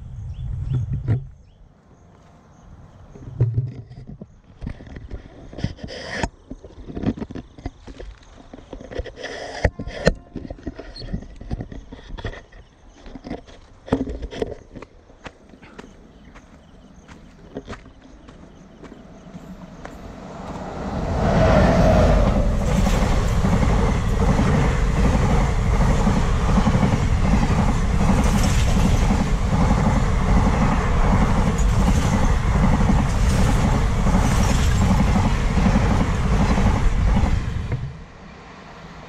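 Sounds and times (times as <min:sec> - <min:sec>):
rumble of wheels on rail: 0:15.3 - 0:39.0
rhythmic clatter over rail joints: 0:17.1 - 0:39.0.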